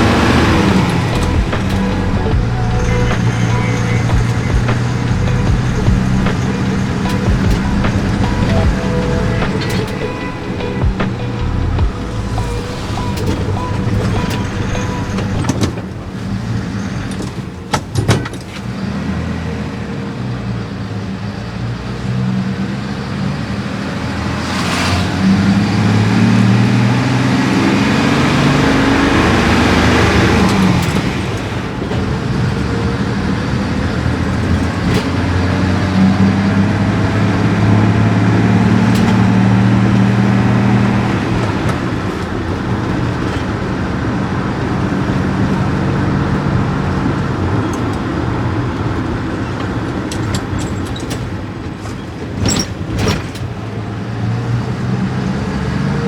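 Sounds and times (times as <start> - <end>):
sharp clicks: 0.0 - 15.7
car engine running: 0.0 - 18.0.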